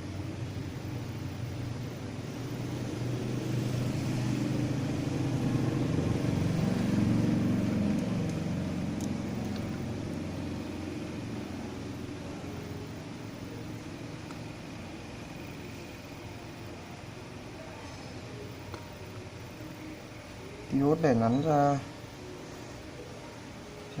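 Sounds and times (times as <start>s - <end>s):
vehicle engine passing by: 2.3s - 12.5s.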